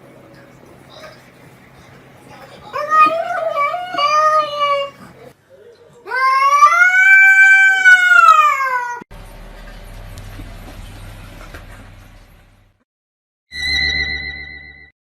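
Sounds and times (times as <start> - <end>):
cat meowing loudly: 6.1 - 9.0.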